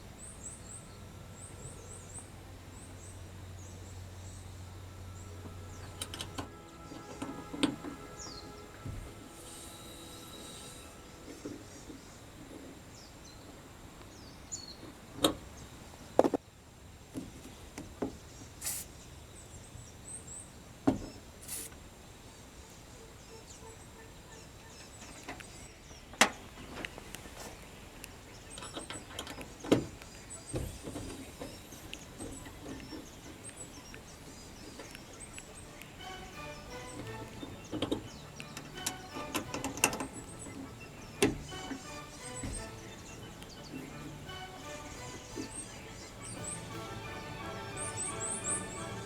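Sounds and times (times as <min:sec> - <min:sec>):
faint high chirps: 0:30.1 - 0:49.0.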